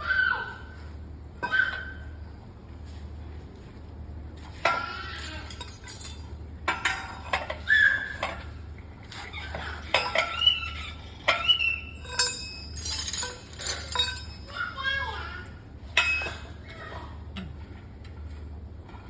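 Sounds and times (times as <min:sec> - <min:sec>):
low steady hum: 0:00.0 - 0:19.0
metal tools clinking and clanking: 0:05.2 - 0:07.6, 0:11.3 - 0:14.8, 0:16.0 - 0:16.8.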